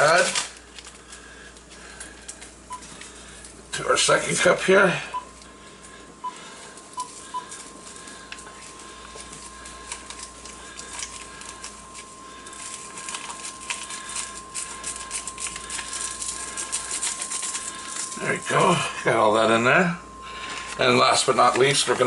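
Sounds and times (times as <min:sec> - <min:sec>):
paper packets tearing and crinkling: 0:00.0 - 0:03.5, 0:06.7 - 0:18.8, 0:20.4 - 0:22.0.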